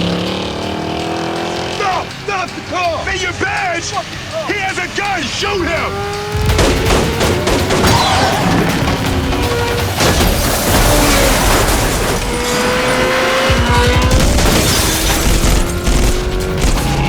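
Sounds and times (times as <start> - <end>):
car sound effects: 0.0 - 17.0
dramatic film score: 0.0 - 17.0
low thuds: 5.8 - 17.0
loud booms: 6.4 - 12.5.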